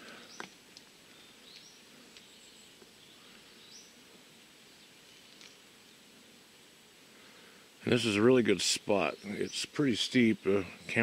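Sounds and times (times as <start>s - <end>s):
soft background hiss: 0.0s - 11.0s.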